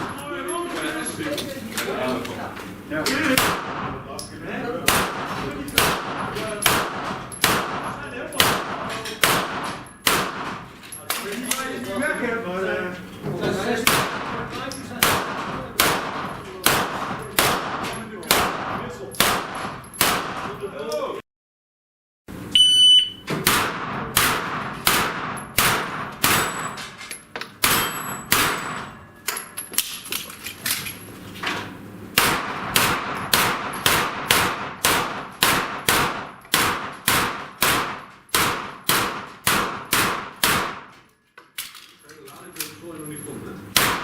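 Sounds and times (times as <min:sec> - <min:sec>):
rapid pistol gunshots: 0:03.4 - 0:04.0, 0:04.8 - 0:10.7, 0:13.8 - 0:14.4, 0:15.0 - 0:20.5, 0:23.4 - 0:26.6, 0:27.6 - 0:28.9, 0:32.1 - 0:41.0, 0:43.8 - 0:44.0
electronic shot timer beep: 0:22.5 - 0:23.2.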